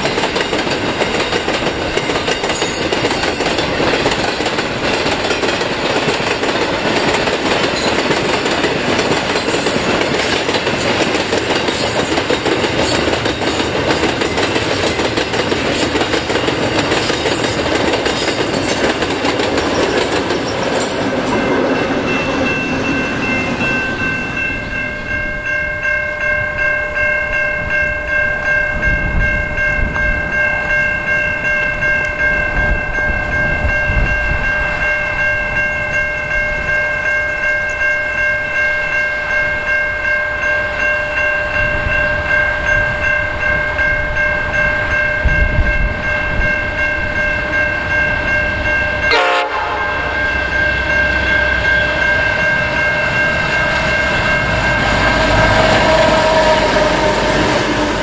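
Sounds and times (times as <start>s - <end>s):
freight wagons rolling on rails: 0.0s - 25.3s
locomotive air horn chord: 49.0s - 52.0s, 55.0s - 58.0s.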